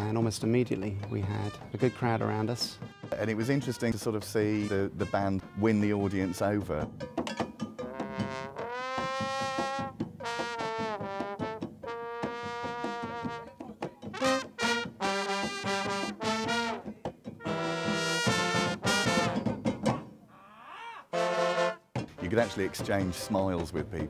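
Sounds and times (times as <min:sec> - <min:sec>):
percussion: 0:00.0 - 0:20.3, 0:21.2 - 0:24.0
brass section playing held notes: 0:01.4 - 0:06.6, 0:07.9 - 0:13.5, 0:14.1 - 0:19.5, 0:21.1 - 0:23.7.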